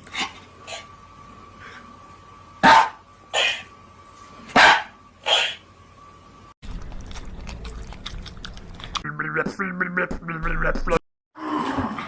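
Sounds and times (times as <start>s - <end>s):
dog barking: 2.6s - 3.6s, 4.5s - 5.6s.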